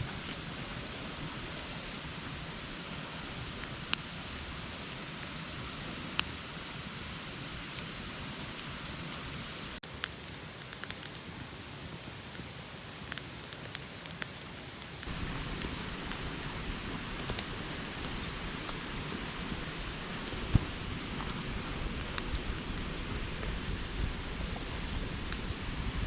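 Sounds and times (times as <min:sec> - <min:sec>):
sharp crackles: 0:09.8 - 0:15.1
steady outdoor hiss: 0:09.8 - 0:15.1.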